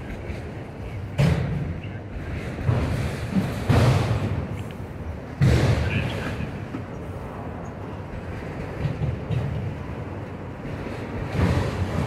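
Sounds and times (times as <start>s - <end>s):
train cars jolting: 0.0s - 7.0s, 8.0s - 12.0s
freight train rumbling on rails: 0.0s - 12.0s.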